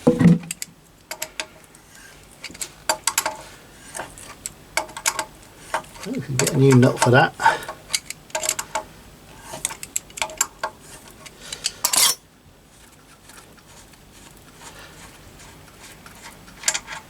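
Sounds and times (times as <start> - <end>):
metal tools clinking: 11.8 - 12.2.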